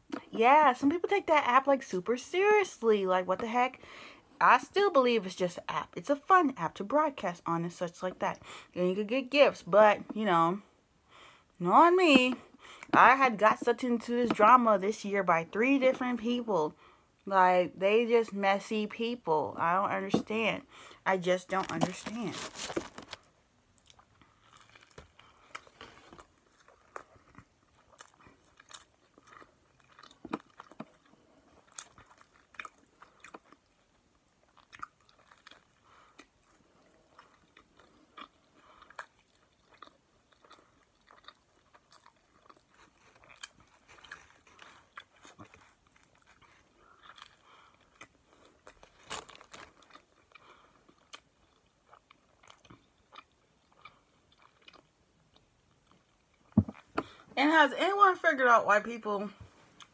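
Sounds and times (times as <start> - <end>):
person chewing sandwich: 22.4 - 57.3.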